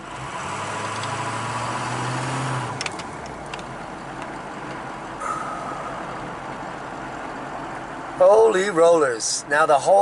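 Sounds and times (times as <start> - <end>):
road noise: 0.0 - 10.0
truck engine hum: 0.0 - 10.0
short high tone: 5.2 - 6.4.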